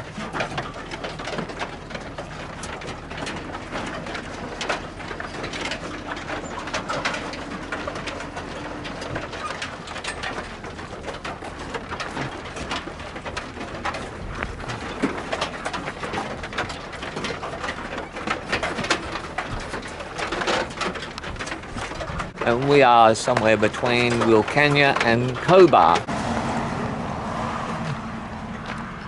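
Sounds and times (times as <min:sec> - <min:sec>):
hooves knocking on decks: 0:00.0 - 0:29.0.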